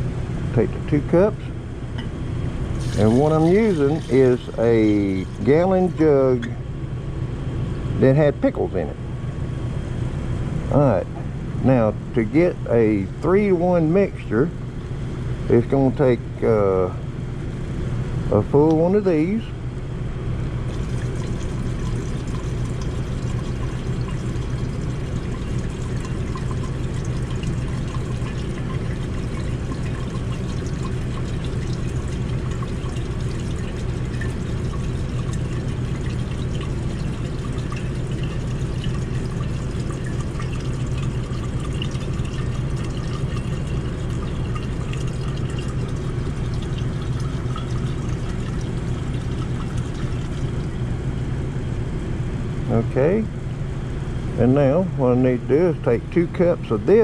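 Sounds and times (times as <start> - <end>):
steady low hum: 0.0 - 57.0
liquid pouring into a jug: 2.7 - 6.6, 20.6 - 51.4.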